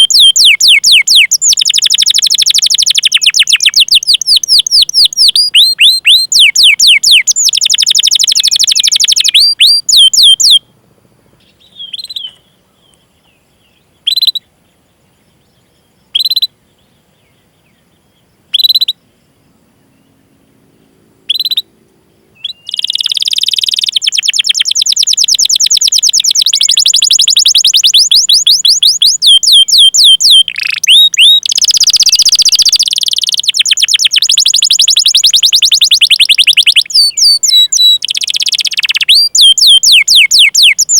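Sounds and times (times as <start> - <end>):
canary chirping: 0.0 - 10.6, 14.0 - 14.4, 22.4 - 40.9.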